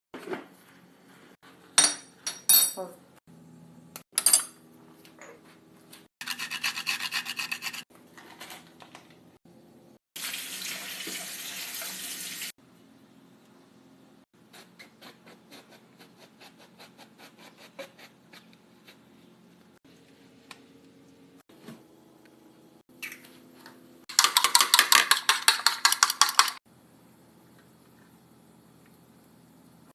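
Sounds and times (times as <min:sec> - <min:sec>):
tap water running: 0:10.2 - 0:12.6.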